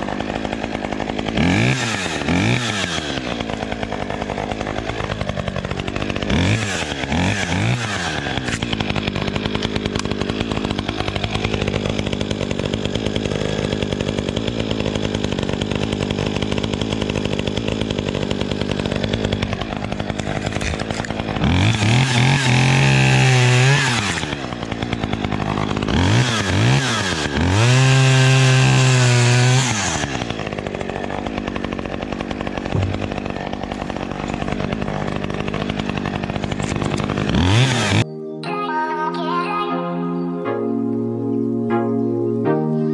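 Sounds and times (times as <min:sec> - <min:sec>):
two-stroke chainsaw revving: 0:00.0 - 0:38.1.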